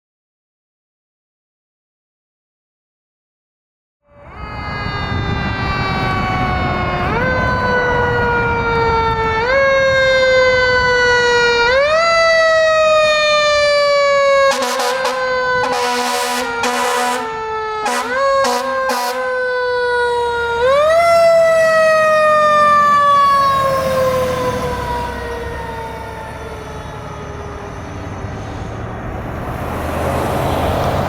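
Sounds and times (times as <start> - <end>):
mechanical siren wailing: 4.1 - 28.2
loud horn blasts: 14.4 - 19.4.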